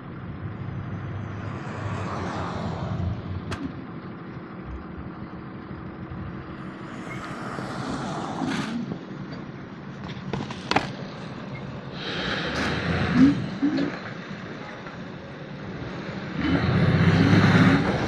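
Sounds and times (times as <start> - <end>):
vehicle passing: 0.0 - 3.6, 6.1 - 8.9, 15.7 - 18.0
street traffic hum: 0.0 - 18.0.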